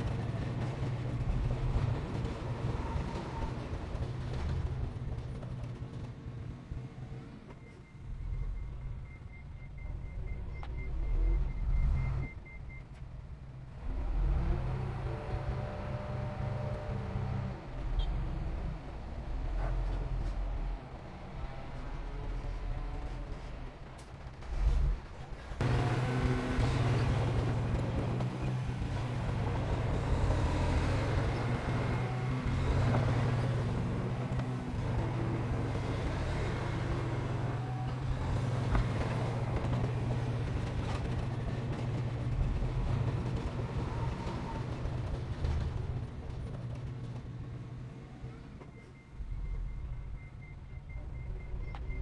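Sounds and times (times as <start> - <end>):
diesel engine running: 25.6 - 47.8.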